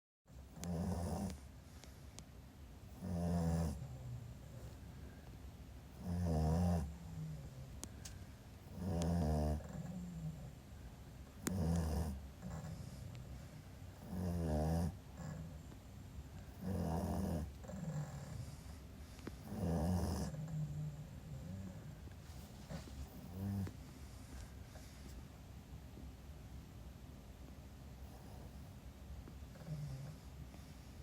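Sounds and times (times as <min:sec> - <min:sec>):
puppy snoring: 0:00.4 - 0:02.0, 0:02.9 - 0:05.2, 0:05.9 - 0:08.0, 0:08.6 - 0:10.6, 0:11.3 - 0:15.8, 0:16.4 - 0:25.2, 0:28.0 - 0:31.0
soft breaths: 0:00.4 - 0:02.5, 0:06.8 - 0:08.7, 0:09.5 - 0:14.0, 0:17.4 - 0:19.6, 0:20.2 - 0:26.1, 0:28.0 - 0:31.0.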